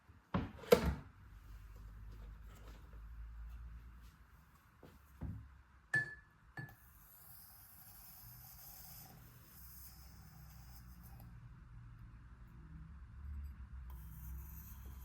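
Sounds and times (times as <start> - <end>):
glass clinks: 6.0 - 6.7.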